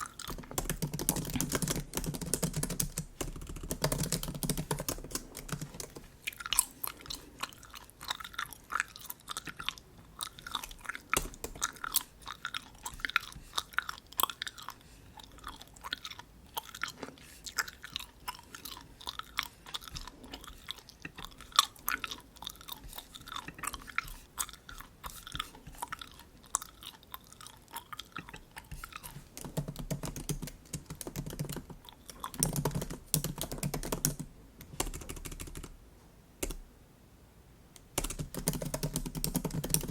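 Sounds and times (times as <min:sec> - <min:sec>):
gum chewing moist clicks: 0:00.0 - 0:34.0
keyboard typing taps: 0:00.3 - 0:06.0, 0:29.4 - 0:35.7.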